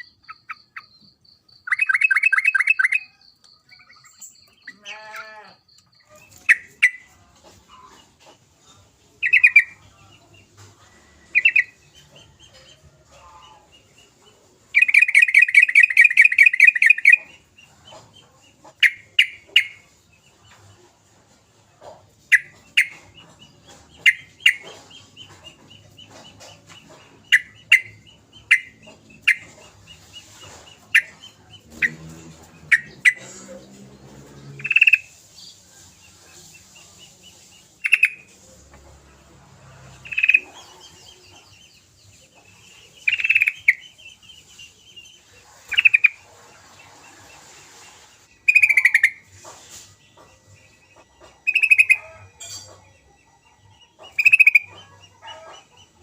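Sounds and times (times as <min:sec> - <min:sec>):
bulbul calling: 0:00.0 - 0:07.1, 0:14.8 - 0:17.5, 0:43.0 - 0:44.0, 0:48.4 - 0:49.3, 0:51.0 - 0:52.7, 0:54.0 - 0:55.6.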